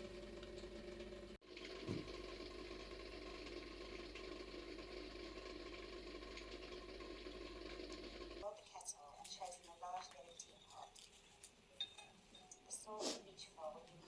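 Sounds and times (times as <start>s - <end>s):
low mechanical hum with tones: 0.0s - 10.9s.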